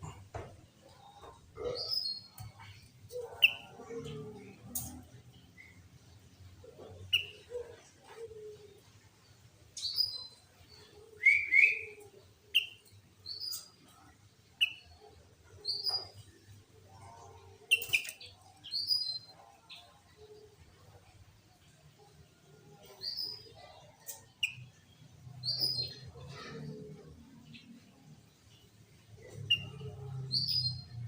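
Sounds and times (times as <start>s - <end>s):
bird whistled calls: 11.2s - 12.0s.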